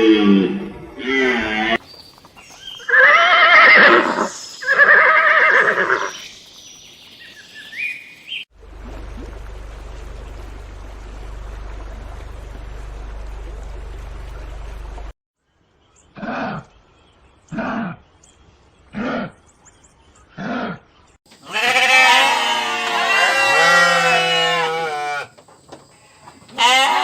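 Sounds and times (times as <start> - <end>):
farm animal crying: 2.9 - 6.1, 21.4 - 25.3, 25.9 - 27.0
low rumble with faint hiss: 8.6 - 15.1.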